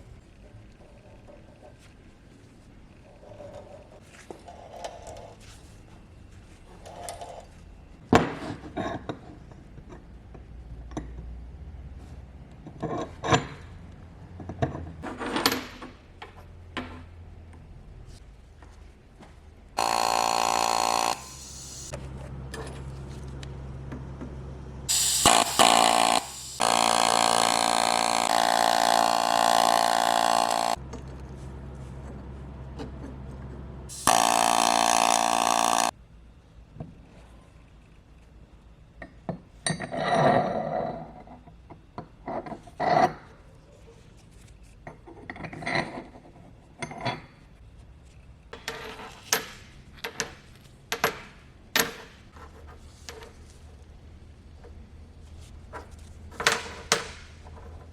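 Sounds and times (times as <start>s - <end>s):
power tool motor whining: 19.8s - 22.0s, 24.9s - 30.8s, 33.9s - 35.9s.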